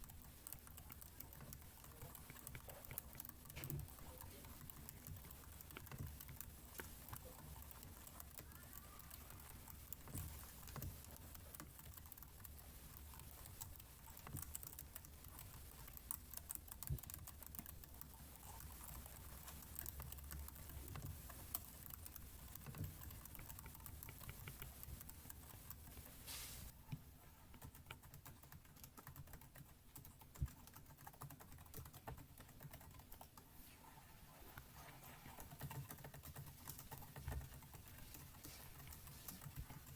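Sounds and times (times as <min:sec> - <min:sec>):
keyboard typing: 0:27.6 - 0:33.4.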